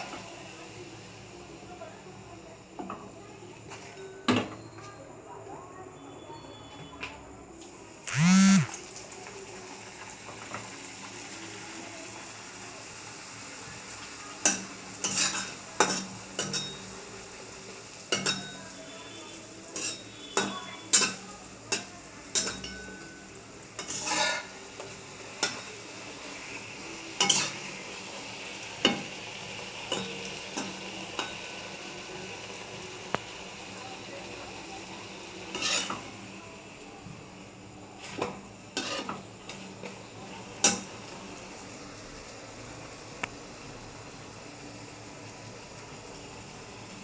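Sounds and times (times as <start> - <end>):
food sizzling in oil: 0.0 - 4.2, 7.6 - 47.0
loud pitched sound: 8.1 - 8.7
spatula clattering on pan: 14.4 - 17.0, 18.1 - 18.8, 19.7 - 25.7, 27.2 - 27.6.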